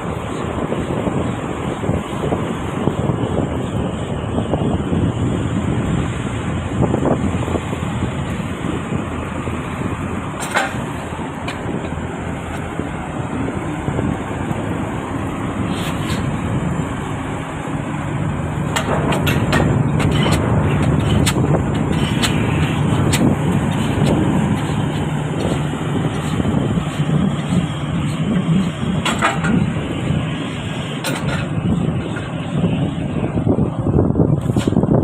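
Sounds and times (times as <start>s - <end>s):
diesel engine humming: 0.0s - 35.0s
metallic knocks and clanks: 10.4s - 12.0s, 18.7s - 26.4s, 27.4s - 29.8s, 31.0s - 32.4s.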